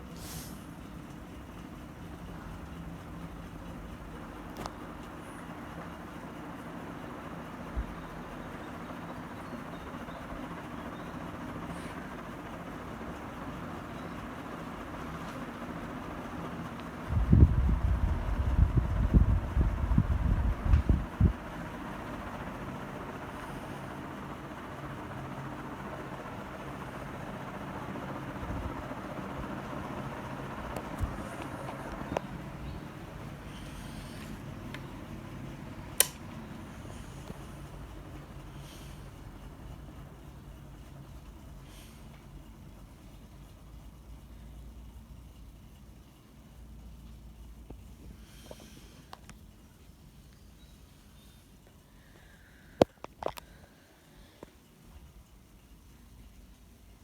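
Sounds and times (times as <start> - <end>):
ceiling fan whirring: 0.0 - 57.0
short clicks: 36.0 - 36.3.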